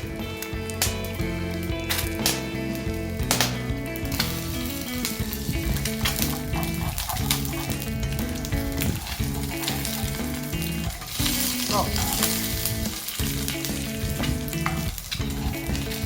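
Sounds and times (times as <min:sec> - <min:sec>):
rhythmic background music: 0:00.0 - 0:16.0
wood fire crackles: 0:00.0 - 0:16.0
food sizzling in a pan: 0:07.0 - 0:16.0.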